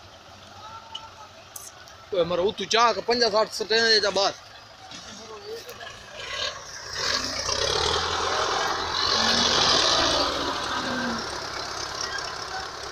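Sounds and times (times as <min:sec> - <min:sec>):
tractor engines running hard: 0:00.0 - 0:12.9.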